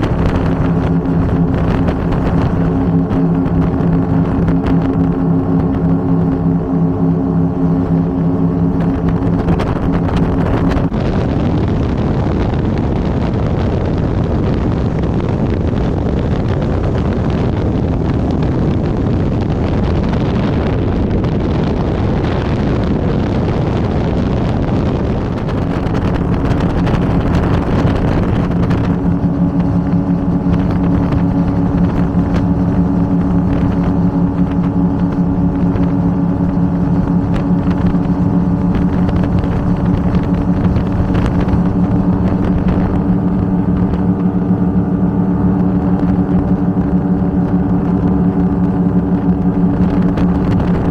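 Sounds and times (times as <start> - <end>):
powerboat engines running: 0.0 - 50.9
rushing noise: 24.7 - 50.9.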